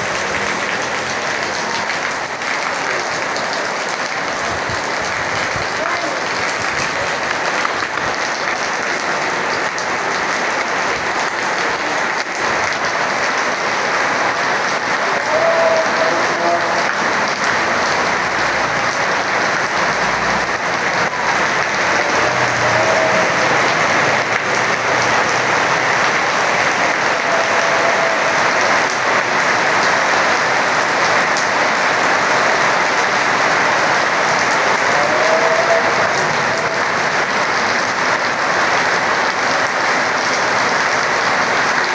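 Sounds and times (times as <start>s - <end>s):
heavy rain falling: 0.0s - 41.9s.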